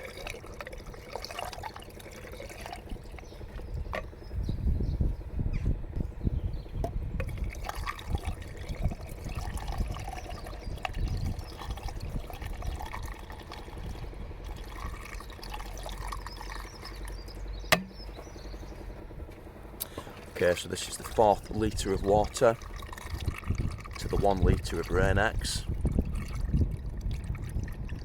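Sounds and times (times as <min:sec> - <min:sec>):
water pouring from a jug: 0:00.0 - 0:03.8, 0:07.2 - 0:17.4, 0:20.2 - 0:28.0
sharp knock: 0:17.7 - 0:18.0.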